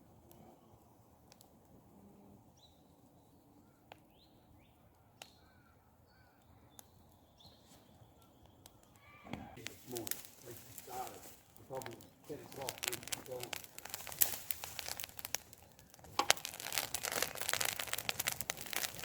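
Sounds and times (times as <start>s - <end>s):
campfire wood popping: 0.0s - 1.8s, 4.9s - 5.7s, 6.3s - 19.0s
faint bird calls: 3.5s - 9.6s.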